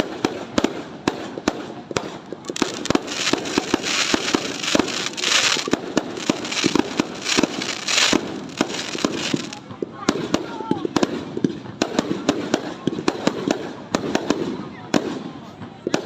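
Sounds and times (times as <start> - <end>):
fireworks bangs: 1.9 - 10.3
fireworks crackling hiss: 2.2 - 9.7.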